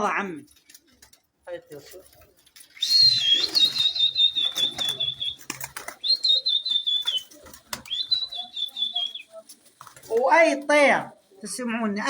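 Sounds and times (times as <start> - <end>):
pigeon wings flapping: 0.6 - 10.4
high warbling whistles: 2.8 - 9.4.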